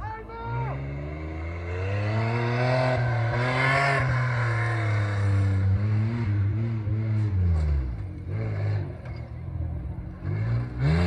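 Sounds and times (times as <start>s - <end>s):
engine revving hard: 0.8s - 8.8s, 10.3s - 11.0s.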